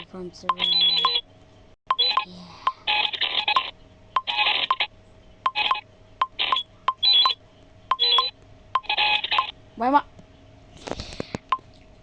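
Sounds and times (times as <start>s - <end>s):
electronic beeping tones: 0.5s - 1.2s, 1.9s - 4.9s, 5.5s - 9.5s.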